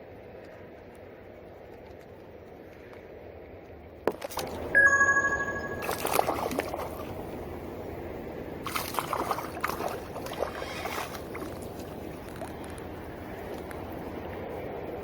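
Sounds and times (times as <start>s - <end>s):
water splashing: 4.1s - 7.6s, 8.6s - 13.6s
water sloshing and trickling: 4.1s - 7.9s, 8.5s - 13.9s.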